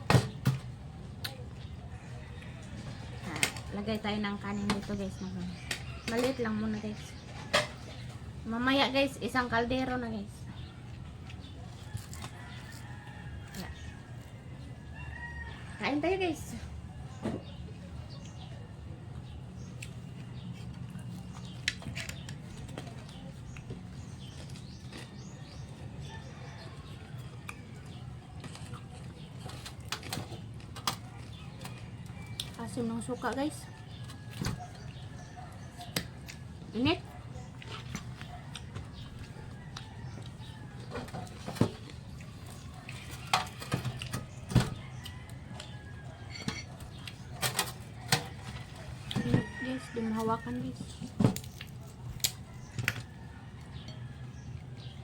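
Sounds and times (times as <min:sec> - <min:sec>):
crunching and chewing food: 0:00.0 - 0:08.5, 0:09.7 - 0:16.0, 0:16.7 - 0:55.0
utensils clinking on plate: 0:46.2 - 0:46.8.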